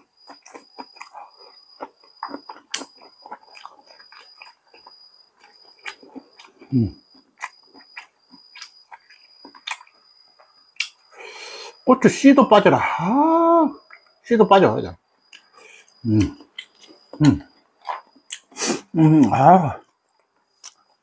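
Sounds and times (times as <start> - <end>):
chewing and lip smacks: 0.0 - 11.0.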